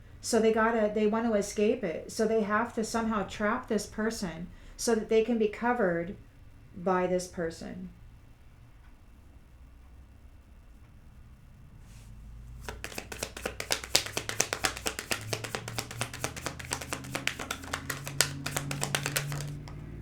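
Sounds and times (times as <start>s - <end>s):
cards being shuffled: 12.6s - 20.0s.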